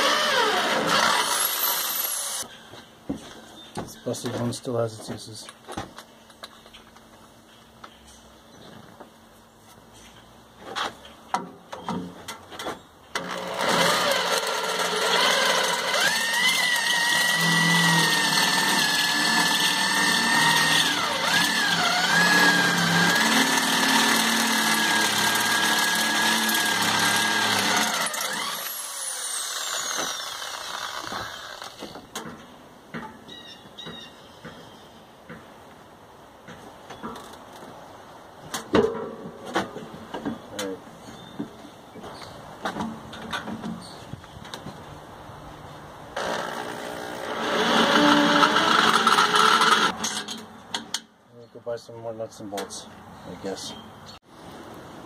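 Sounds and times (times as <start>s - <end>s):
power tool whining: 0.0s - 2.4s, 13.1s - 32.0s, 46.2s - 50.0s.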